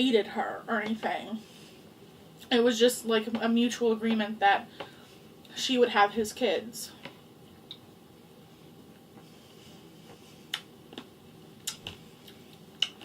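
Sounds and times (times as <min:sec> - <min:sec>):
room hum: 0:00.0 - 0:13.0
eating clicks and smacks: 0:10.5 - 0:13.0.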